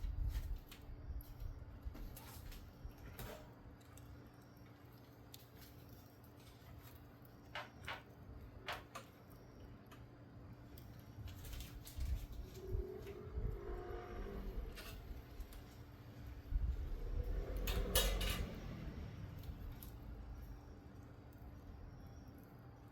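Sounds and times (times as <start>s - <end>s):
wood fire crackling and popping: 0.0s - 13.2s, 14.7s - 22.9s.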